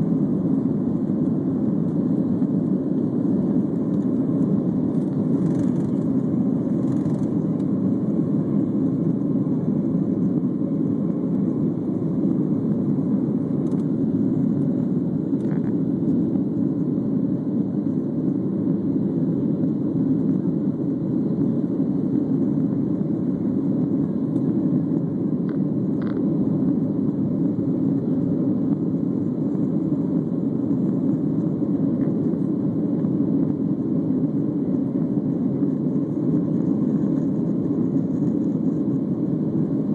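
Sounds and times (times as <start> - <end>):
jet engine roar in cabin: 0.0 - 39.9.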